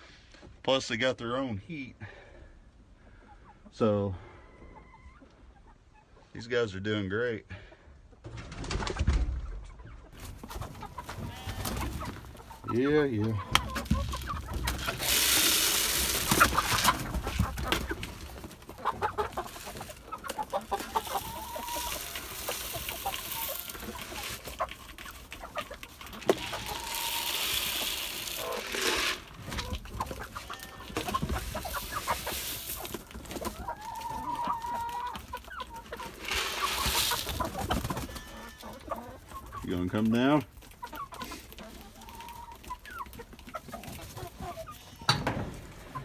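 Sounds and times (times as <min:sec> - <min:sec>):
chickens clucking: 0:02.8 - 0:06.4, 0:08.8 - 0:46.0
rustling: 0:10.2 - 0:46.0.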